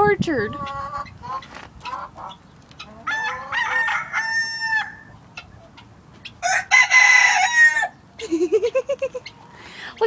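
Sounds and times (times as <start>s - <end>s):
roosters crowing: 0.7s - 5.2s, 6.3s - 8.6s.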